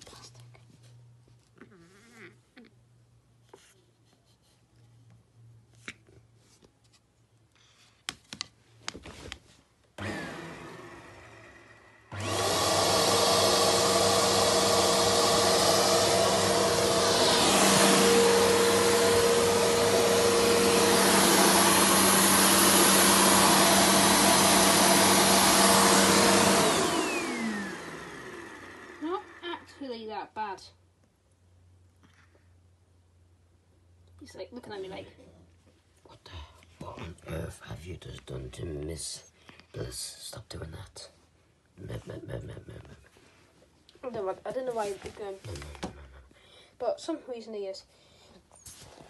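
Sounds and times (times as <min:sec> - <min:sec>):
upright vacuum cleaner running: 0:10.0 - 0:29.7.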